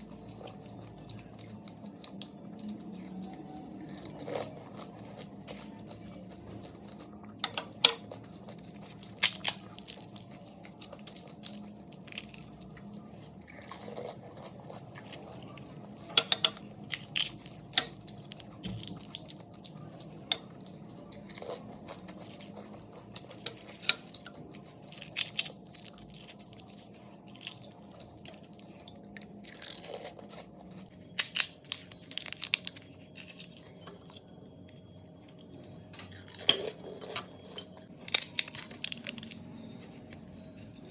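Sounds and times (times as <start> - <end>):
chewing: 0.0 - 40.9
crisp shells crunching: 8.0 - 15.8, 21.0 - 34.6, 36.1 - 40.9.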